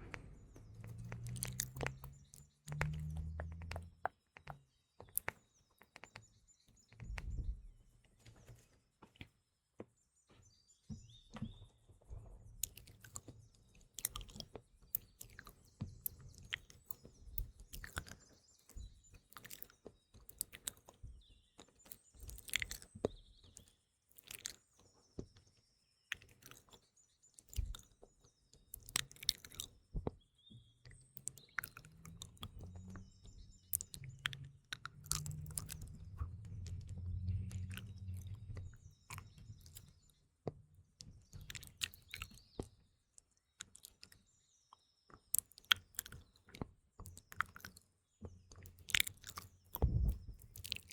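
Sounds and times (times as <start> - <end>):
lip and tongue clicks: 0.0 - 6.2, 12.6 - 13.3, 13.9 - 19.7, 20.3 - 21.0, 21.6 - 22.9, 23.6 - 24.7, 26.1 - 26.8, 27.4 - 27.9, 28.7 - 29.7, 31.2 - 33.0, 33.7 - 40.0, 41.4 - 42.7, 43.6 - 44.2, 45.3 - 47.8, 48.5 - 50.9
faint birds chirping: 0.0 - 50.9.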